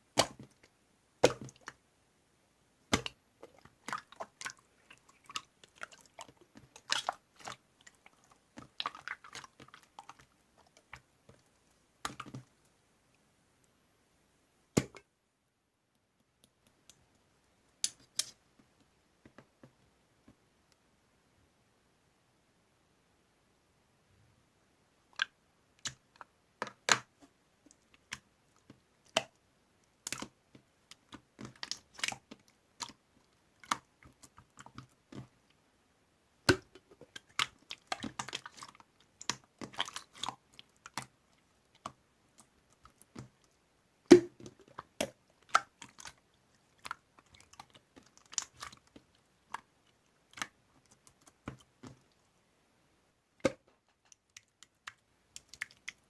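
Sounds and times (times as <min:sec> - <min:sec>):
slime clicking and popping: 0:44.1 - 0:46.2.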